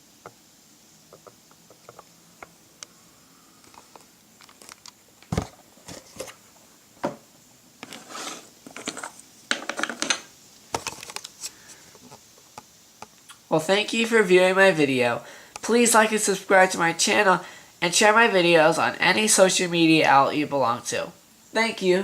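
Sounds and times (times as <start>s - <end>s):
scraping and crinkling: 3.6s - 6.6s, 7.8s - 12.2s.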